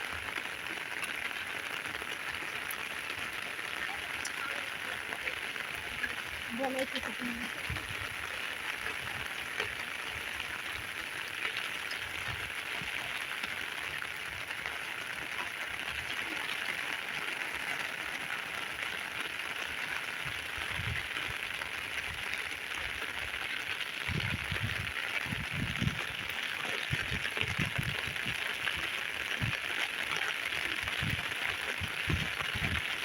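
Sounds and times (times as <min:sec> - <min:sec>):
heavy rain falling: 0:00.0 - 0:33.0.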